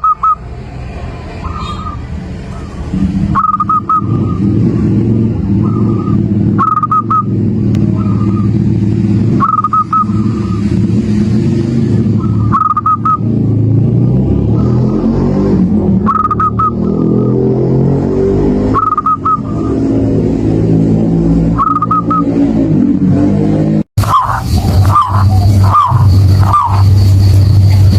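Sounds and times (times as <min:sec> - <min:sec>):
dove cooing: 0:00.0 - 0:00.5, 0:01.4 - 0:08.6, 0:09.4 - 0:10.6, 0:12.2 - 0:13.2, 0:16.1 - 0:17.2, 0:18.7 - 0:20.0, 0:21.5 - 0:22.2, 0:24.0 - 0:27.9
low vehicle engine hum: 0:00.0 - 0:27.9.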